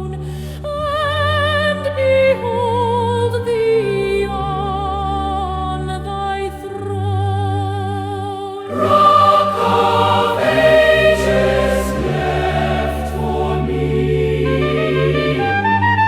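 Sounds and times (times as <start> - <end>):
sustained accompaniment: 8.6 - 15.9
choir singing a hymn: 8.6 - 16.0.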